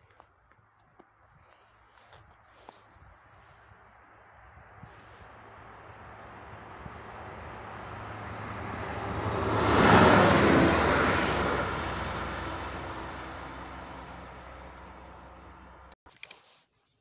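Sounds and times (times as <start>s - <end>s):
low engine hum: 3.0s - 16.0s
train wheels rushing past: 5.6s - 14.9s.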